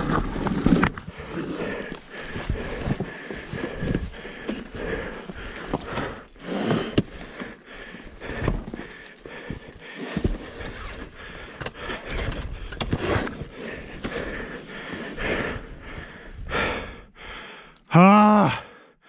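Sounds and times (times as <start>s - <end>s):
person breathing hard: 1.0s - 19.0s.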